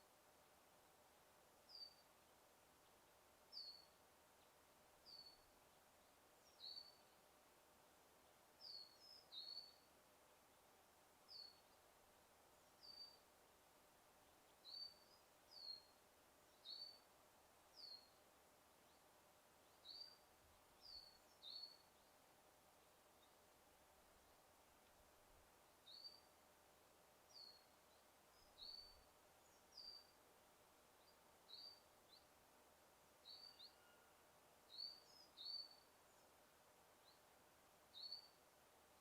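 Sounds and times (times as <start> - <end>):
steady background hiss: 0.0 - 39.0
bird chirping faintly: 1.7 - 7.3, 8.2 - 10.4, 11.3 - 11.9, 18.8 - 25.0, 25.6 - 26.4, 27.2 - 30.2, 30.9 - 32.4, 33.1 - 39.0.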